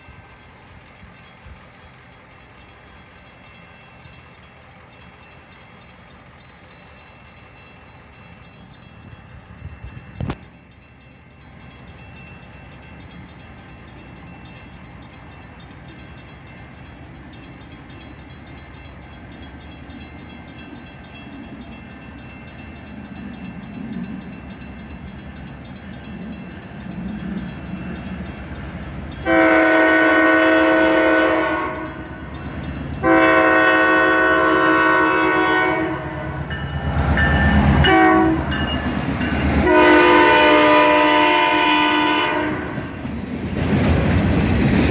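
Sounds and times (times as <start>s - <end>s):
diesel locomotive rumble: 0.0s - 44.9s
freight cars rolling past: 0.0s - 44.9s
locomotive horn blasts: 29.2s - 32.2s, 33.0s - 36.6s, 37.6s - 38.6s, 39.6s - 43.0s.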